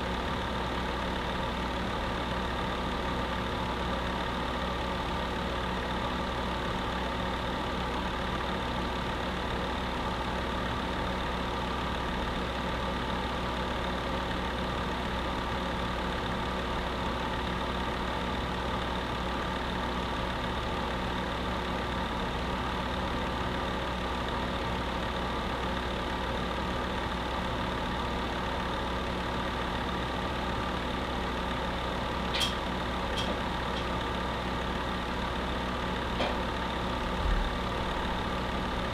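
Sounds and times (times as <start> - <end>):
space heater humming: 32.3 - 34.2.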